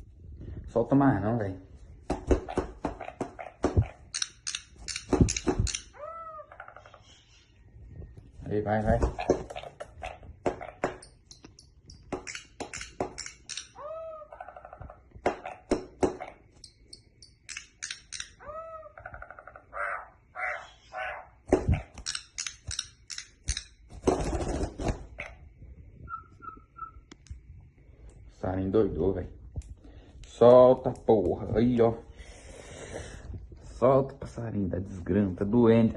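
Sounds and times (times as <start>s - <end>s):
bird chattering calls: 26.1s - 27.1s.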